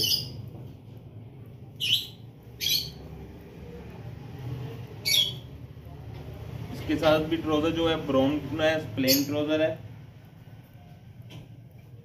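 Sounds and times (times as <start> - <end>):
small bird chirping: 0.0 - 0.4, 1.8 - 3.2, 5.0 - 5.6.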